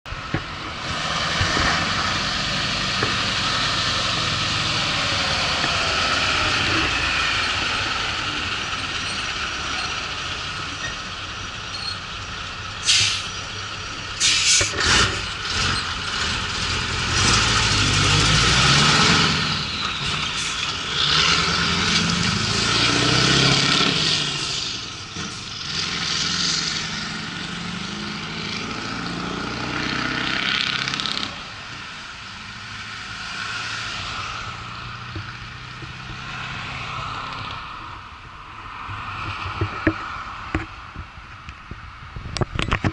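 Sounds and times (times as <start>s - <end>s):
diesel truck engine idling and revving: 0.0s - 42.9s
air brake hissing: 12.8s - 13.3s, 14.2s - 14.8s.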